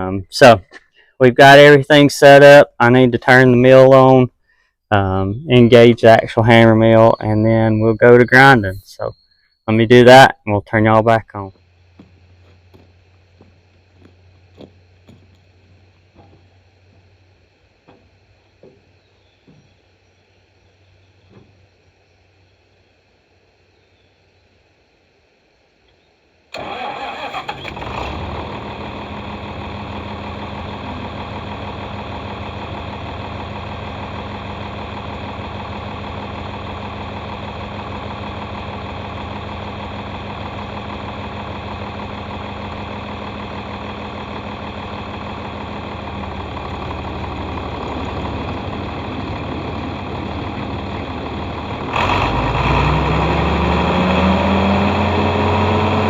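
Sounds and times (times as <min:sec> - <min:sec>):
tractor diesel engine running: 0:00.0 - 0:04.3, 0:04.9 - 0:23.6, 0:26.5 - 0:56.0.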